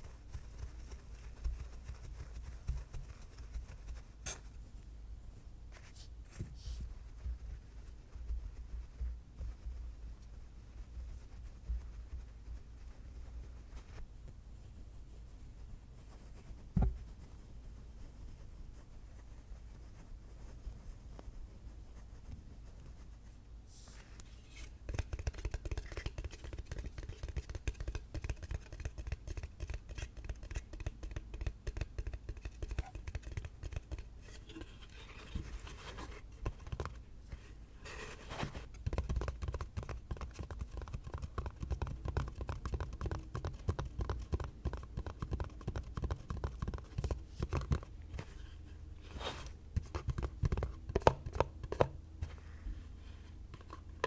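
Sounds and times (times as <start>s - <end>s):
rapid tapping and scratching: 0.0s - 4.5s, 24.9s - 37.1s, 38.6s - 48.3s, 49.7s - 51.9s.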